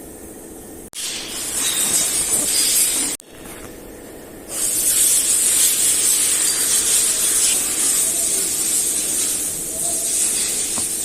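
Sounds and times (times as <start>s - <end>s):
hissing spray: 1.0s - 3.2s, 4.5s - 11.0s.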